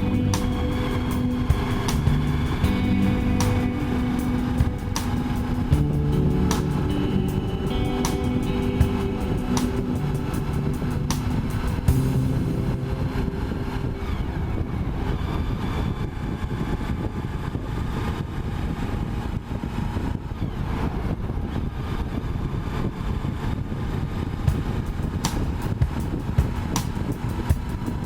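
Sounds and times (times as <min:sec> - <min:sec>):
motorcycle engine running: 0:00.0 - 0:14.2, 0:24.5 - 0:28.0
wind and road rumble: 0:00.0 - 0:28.0.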